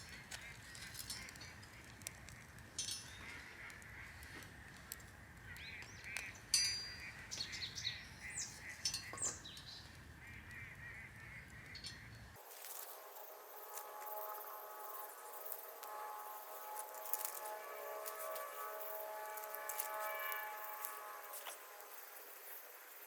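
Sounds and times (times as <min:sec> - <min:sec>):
geese honking: 0:12.4 - 0:22.8.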